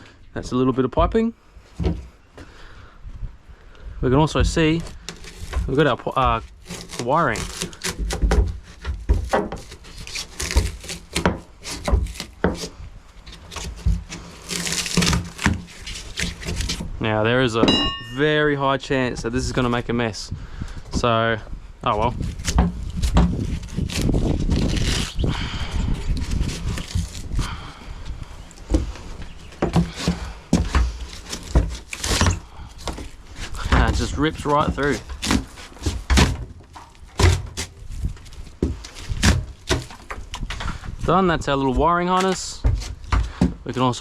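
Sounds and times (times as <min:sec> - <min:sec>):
wiring tearing out of foam: 0:04.8 - 0:16.9, 0:22.2 - 0:27.6, 0:29.9 - 0:40.6
scrape or rustle: 0:08.6 - 0:16.9
sharp knocks: 0:17.6 - 0:18.4.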